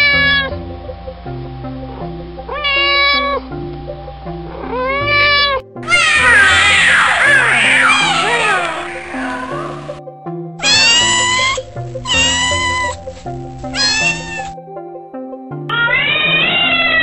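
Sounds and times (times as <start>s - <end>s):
cat meowing: 2.5s - 3.4s, 4.7s - 10.0s, 10.6s - 14.6s, 15.7s - 17.0s
music with stepping bass line: 11.6s - 14.6s.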